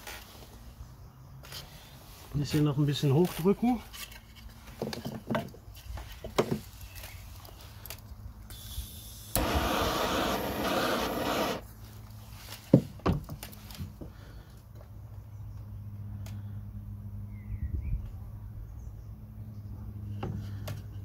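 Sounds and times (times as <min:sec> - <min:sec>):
gas torch hissing: 0:08.5 - 0:11.7.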